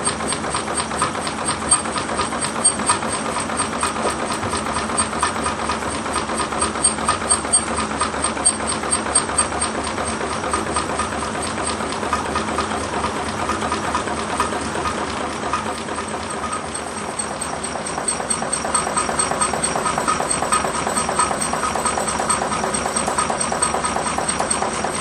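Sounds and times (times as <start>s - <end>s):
model engine clattering: 0.0s - 25.0s.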